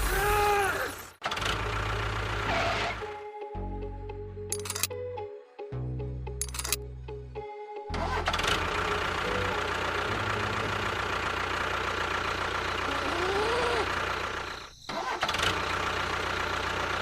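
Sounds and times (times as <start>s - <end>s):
tractor engine running: 1.2s - 3.2s, 7.9s - 17.0s.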